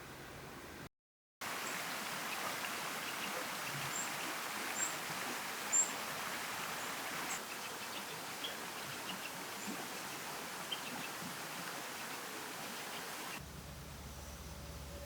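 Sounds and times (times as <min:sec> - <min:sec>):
stream water flowing: 0:01.4 - 0:13.4.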